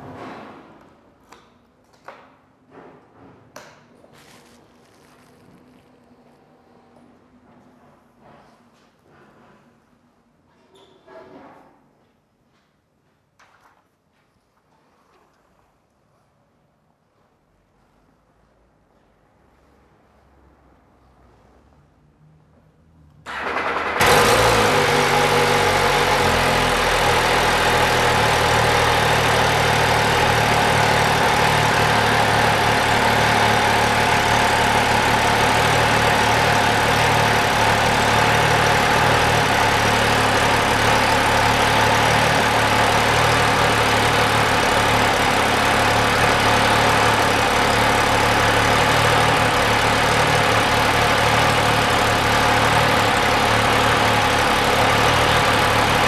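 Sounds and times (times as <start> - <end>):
motorcycle starter turning: 23.3 - 26.2
motorcycle engine idling: 23.7 - 56.0.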